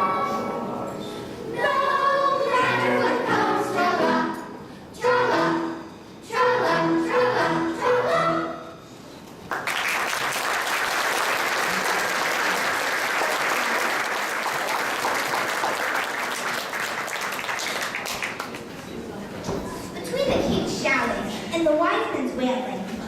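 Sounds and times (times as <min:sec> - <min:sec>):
audience applause: 0:09.5 - 0:18.7.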